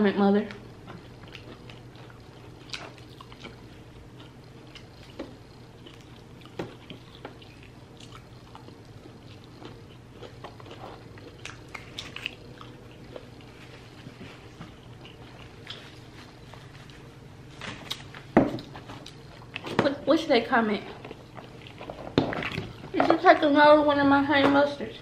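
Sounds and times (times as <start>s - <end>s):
chewing and biting: 0.8s - 17.0s.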